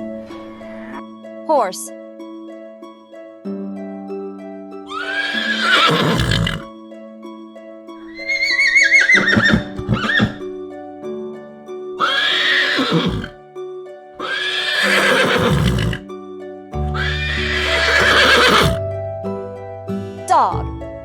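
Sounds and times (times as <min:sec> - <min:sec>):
light background music: 0:00.0 - 0:21.0
horse neighing: 0:04.9 - 0:06.7, 0:08.1 - 0:10.5, 0:12.0 - 0:13.4, 0:14.2 - 0:16.0, 0:16.9 - 0:18.8.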